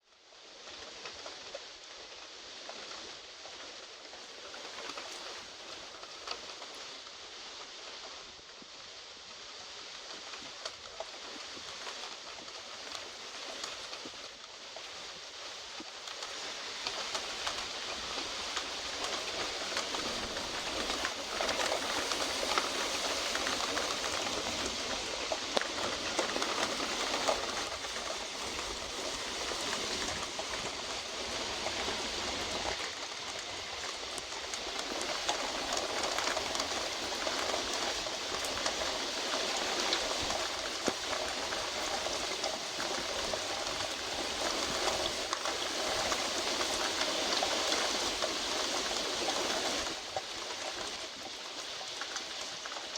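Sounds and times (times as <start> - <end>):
heavy rain falling: 8.8 - 52.9
rain drop ticks: 10.0 - 52.9.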